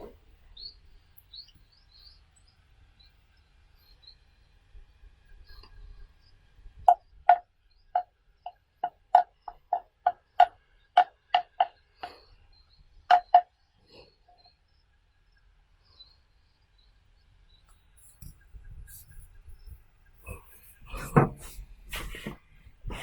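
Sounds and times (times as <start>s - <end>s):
sharp hollow knocks: 9.2s - 11.8s, 13.1s - 13.4s.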